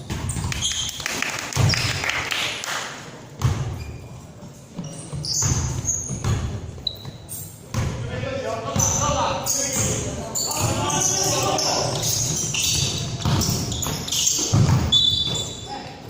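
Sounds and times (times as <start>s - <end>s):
basketball bouncing on gym floor: 0.0s - 0.8s, 3.4s - 4.0s, 4.8s - 8.0s, 10.6s - 15.6s
shoe squeaks: 0.2s - 1.0s, 3.6s - 7.7s, 8.8s - 16.0s.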